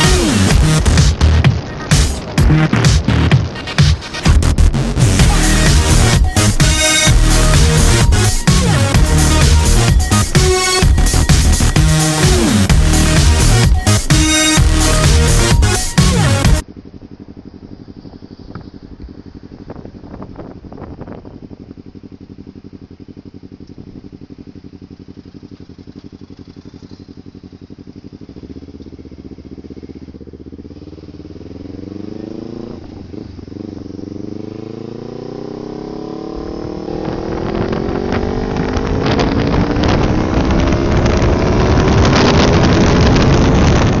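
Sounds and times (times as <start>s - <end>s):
vehicle engine accelerating: 0.0s - 44.0s
wind noise on microphone: 18.5s - 21.7s, 36.4s - 44.0s.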